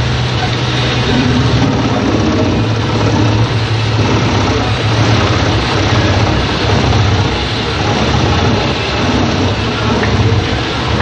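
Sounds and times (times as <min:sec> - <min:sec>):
wood chipper running: 0:00.0 - 0:11.0.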